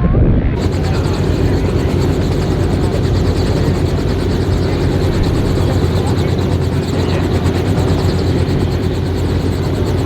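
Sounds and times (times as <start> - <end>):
wind noise on microphone: 0.0 - 2.2
dirt bike engine drone: 0.0 - 10.0.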